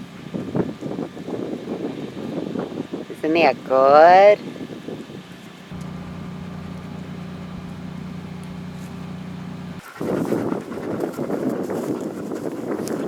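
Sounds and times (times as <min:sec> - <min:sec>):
wind buffeting microphone: 0:00.0 - 0:13.0
low mechanical hum: 0:05.7 - 0:10.6.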